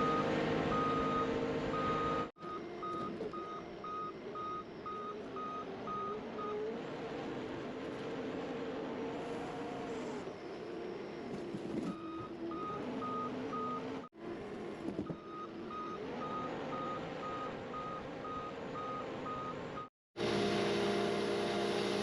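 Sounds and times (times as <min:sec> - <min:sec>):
skid steer engine running: 0:20.2 - 0:22.0.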